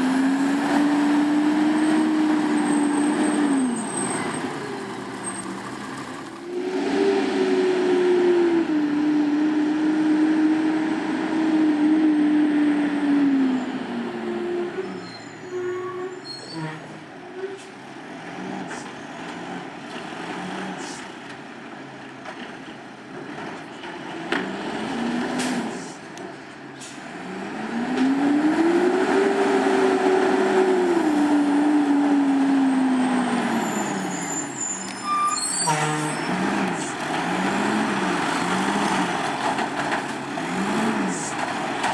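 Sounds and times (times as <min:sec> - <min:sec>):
diesel truck engine revving: 0:00.0 - 0:15.0, 0:23.2 - 0:26.2, 0:26.9 - 0:34.3, 0:34.9 - 0:41.9.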